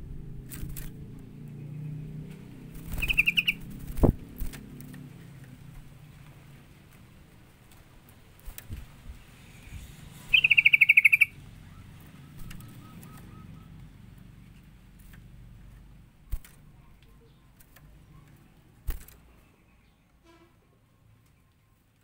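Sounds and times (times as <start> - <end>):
bird trill: 2.8 - 3.8, 9.6 - 13.9.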